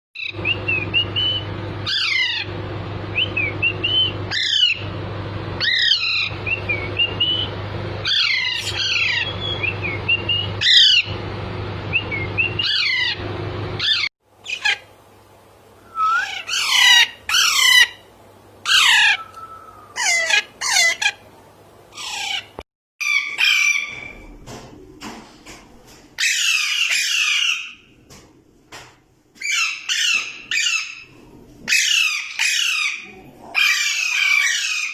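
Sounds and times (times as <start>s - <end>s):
steady low hum: 0.2s - 22.6s
parakeets squawking: 1.2s - 2.5s, 3.3s - 4.8s, 5.6s - 11.2s, 12.1s - 13.2s, 13.8s - 14.9s, 16.0s - 21.2s, 21.9s - 24.3s, 26.2s - 27.9s, 29.4s - 34.9s.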